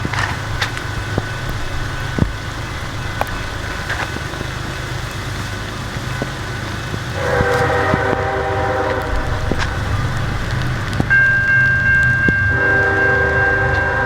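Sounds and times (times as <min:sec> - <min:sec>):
diesel engine rumble: 0:00.0 - 0:14.0
locomotive air horn: 0:06.0 - 0:14.0.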